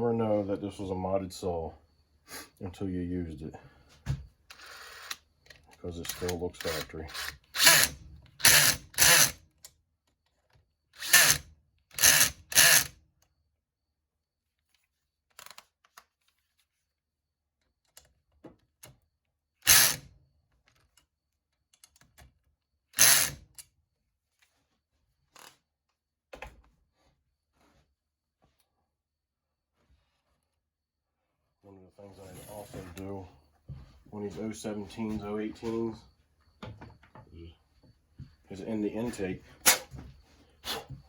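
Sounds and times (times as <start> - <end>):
power tool bursts: 6.1 - 9.4, 11.0 - 11.4, 12.0 - 12.9, 19.6 - 20.1, 23.0 - 23.4.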